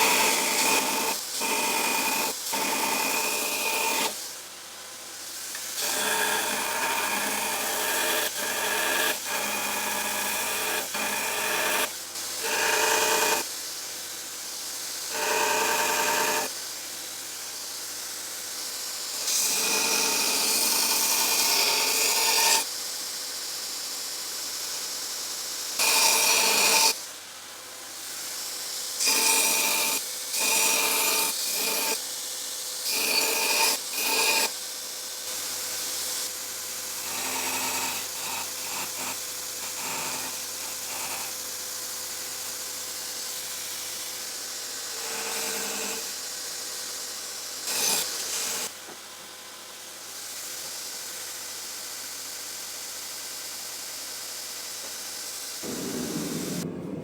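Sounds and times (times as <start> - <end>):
power grinder on steel: 0.0 - 4.2, 5.5 - 13.5, 15.1 - 16.5, 19.1 - 22.7, 36.9 - 41.3, 47.6 - 48.7.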